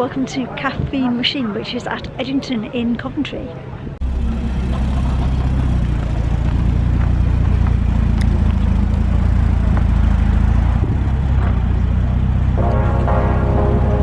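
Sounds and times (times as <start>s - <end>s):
vehicle engine rumbling: 4.0s - 14.0s.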